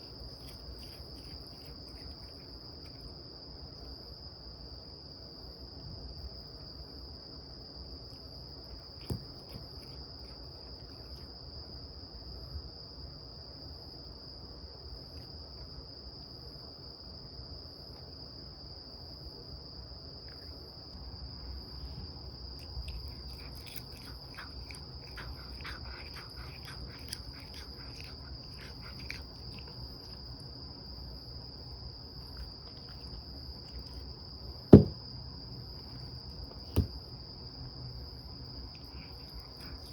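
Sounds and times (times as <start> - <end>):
cat chewing grass clicks: 0.0 - 3.1, 22.6 - 30.6, 32.2 - 34.1, 38.7 - 39.9.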